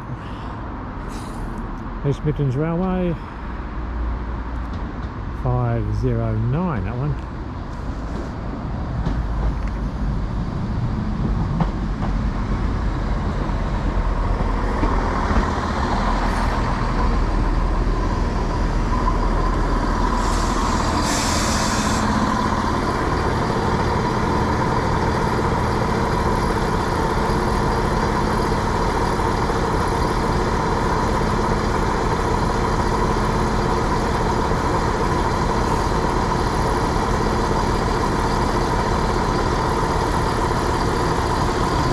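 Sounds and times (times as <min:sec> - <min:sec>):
diesel train engines running: 0:00.0 - 0:41.9
air hiss: 0:20.1 - 0:22.8.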